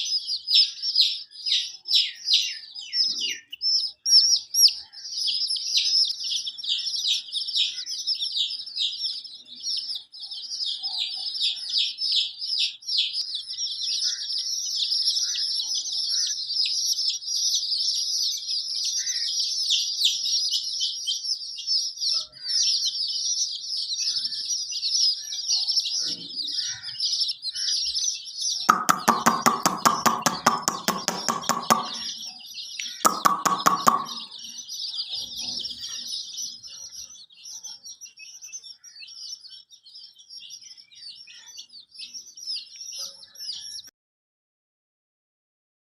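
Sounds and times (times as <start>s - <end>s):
chicks peeping: 0.0s - 43.9s
hen clucking: 28.7s - 34.5s.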